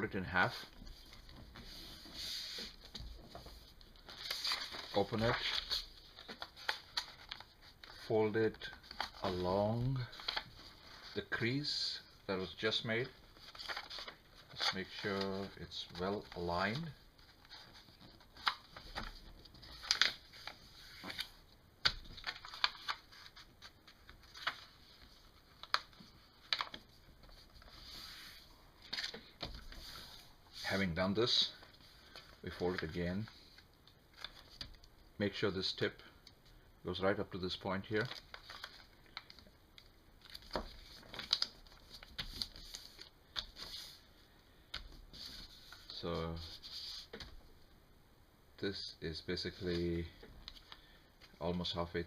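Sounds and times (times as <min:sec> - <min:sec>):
paper rustling and crinkling: 0:00.7 - 0:11.2, 0:12.7 - 0:34.9, 0:37.8 - 0:44.1.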